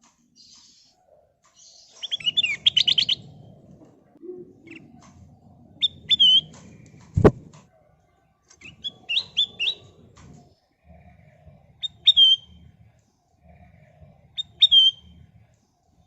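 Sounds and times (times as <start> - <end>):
bird singing whistled chirps: 1.6 - 3.6, 4.6 - 5.0, 5.6 - 6.6, 8.6 - 10.0, 10.8 - 12.8, 13.4 - 15.3
sharp thump: 7.2 - 7.5.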